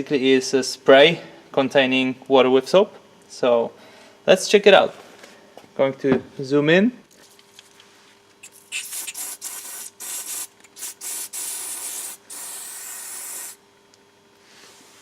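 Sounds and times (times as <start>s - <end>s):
spray bottle hissing: 8.4s - 13.6s.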